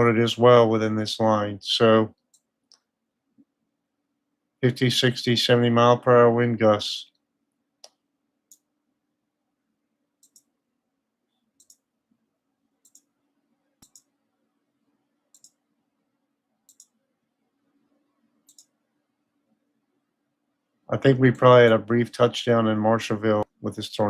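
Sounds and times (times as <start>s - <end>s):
faint steady hum: 0.0s - 24.0s
computer mouse clicks: 7.8s - 8.7s, 10.2s - 10.5s, 11.3s - 11.9s, 12.8s - 13.1s, 13.8s - 14.1s, 15.3s - 15.6s, 16.7s - 17.0s, 18.4s - 18.8s.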